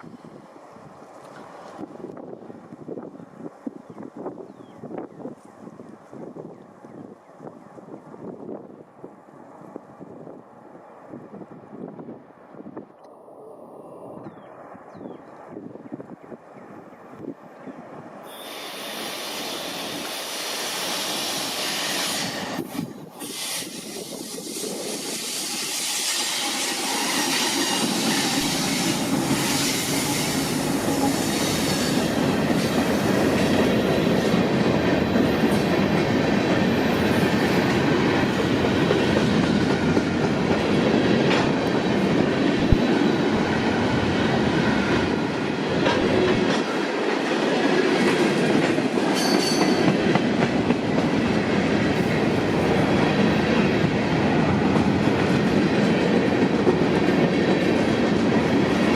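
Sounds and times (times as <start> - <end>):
freight train wheels rumbling: 0.0 - 58.9
high wheel squeal: 18.3 - 22.4, 49.2 - 49.9
clickety-clack over rail joints: 22.2 - 58.9.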